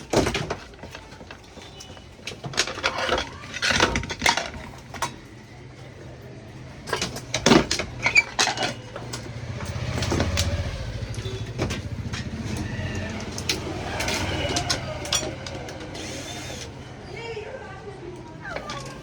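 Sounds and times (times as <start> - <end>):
tools clinking on metal: 6.8 - 16.8
small engine running: 9.0 - 16.9.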